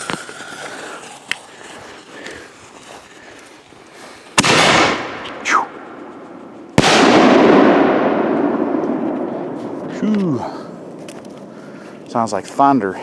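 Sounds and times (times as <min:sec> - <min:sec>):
loud firework bang with crackling: 0:04.4 - 0:05.3, 0:06.8 - 0:10.0.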